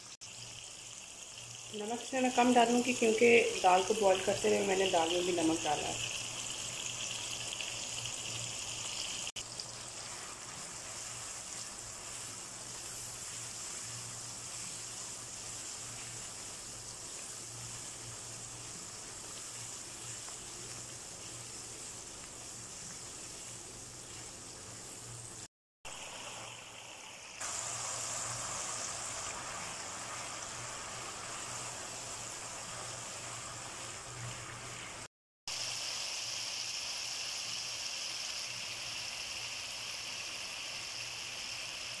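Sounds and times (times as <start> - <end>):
masala sizzling in oil: 0.0 - 42.0.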